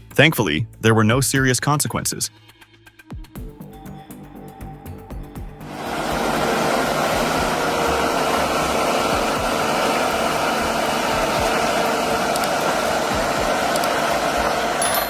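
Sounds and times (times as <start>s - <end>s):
machine running with rushing noise: 5.6s - 15.0s.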